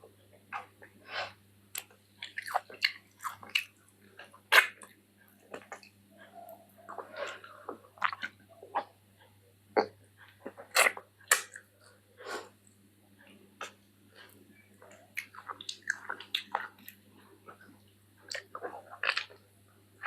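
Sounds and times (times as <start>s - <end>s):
person chewing wetly: 1.7s - 8.9s, 13.6s - 19.4s.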